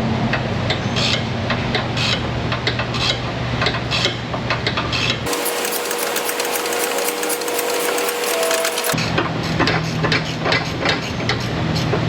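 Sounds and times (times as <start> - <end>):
ratchet wrench clicking: 5.3 - 9.0
steady hum: 5.3 - 9.0.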